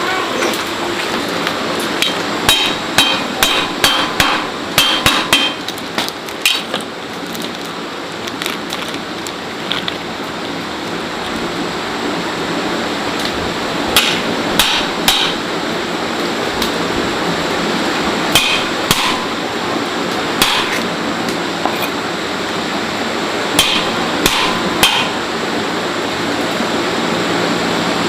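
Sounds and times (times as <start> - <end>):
sharp ringing knocks: 2.5 - 5.6, 14.0 - 15.4, 18.4 - 19.3, 20.4 - 20.8, 23.6 - 25.2.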